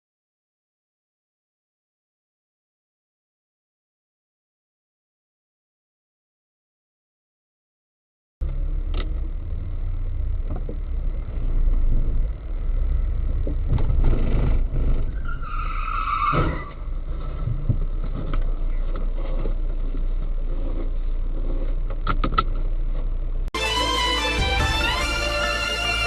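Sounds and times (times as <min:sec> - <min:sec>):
car engine and road noise: 0:08.4 - 0:26.0
high-pitched squeal: 0:23.6 - 0:26.0.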